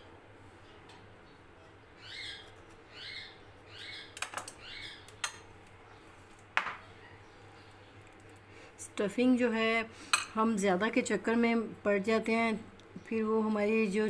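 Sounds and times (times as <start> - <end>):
bird calling: 2.0 - 5.1.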